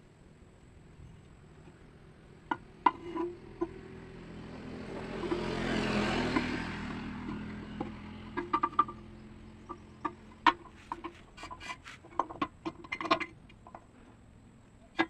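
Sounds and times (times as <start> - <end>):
vehicle passing by: 1.8 - 11.9.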